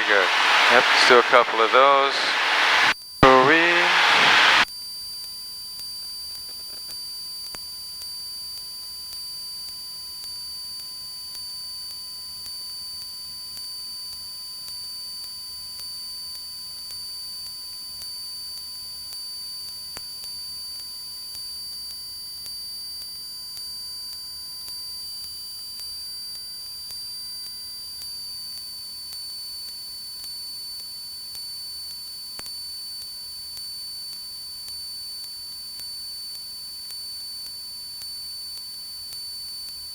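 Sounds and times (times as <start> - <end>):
electrical whine and hiss: 0.0 - 4.6.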